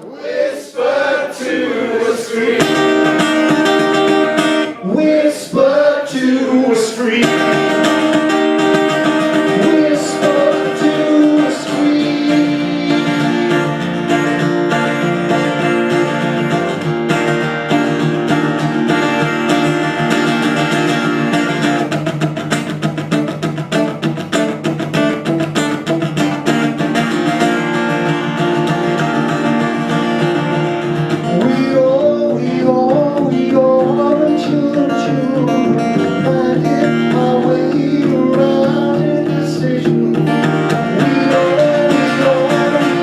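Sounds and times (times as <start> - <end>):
person singing: 0.0 - 13.9, 31.2 - 43.0
acoustic guitar strumming: 0.0 - 43.0.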